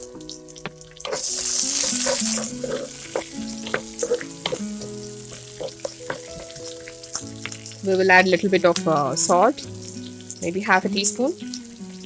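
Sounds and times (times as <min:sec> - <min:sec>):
soft background music: 0:00.0 - 0:12.0
vegetables sizzling in hot oil: 0:00.0 - 0:12.0
wooden spatula scraping a pan: 0:01.0 - 0:07.6.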